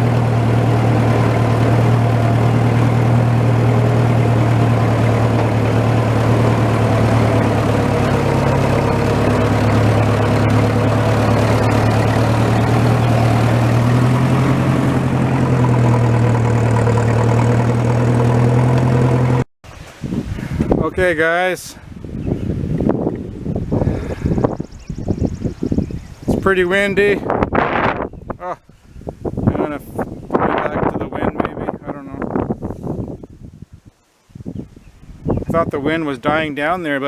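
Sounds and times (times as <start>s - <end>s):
tractor engine running: 0.0s - 19.5s.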